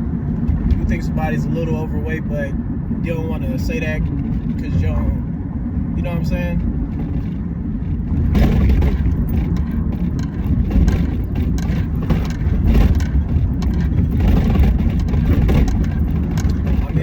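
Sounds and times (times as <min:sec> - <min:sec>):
loud steady low rumble: 0:00.0 - 0:17.0
short crackles and knocks: 0:06.6 - 0:17.0.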